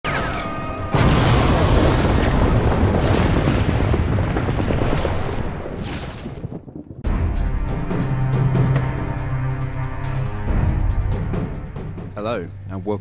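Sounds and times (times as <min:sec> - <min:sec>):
loud boom with deep rumble: 0:00.9 - 0:05.2.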